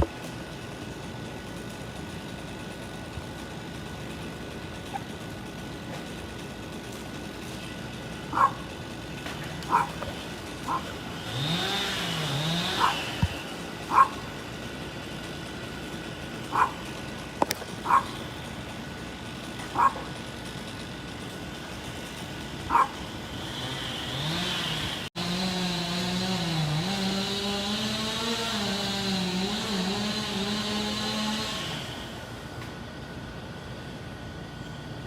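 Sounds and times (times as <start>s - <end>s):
engine running: 0.0s - 35.0s
dog barking: 8.3s - 8.6s, 9.7s - 10.0s, 10.7s - 10.9s, 12.7s - 13.0s, 13.9s - 14.2s, 16.5s - 16.8s, 17.8s - 18.1s, 19.7s - 20.1s, 22.7s - 23.0s.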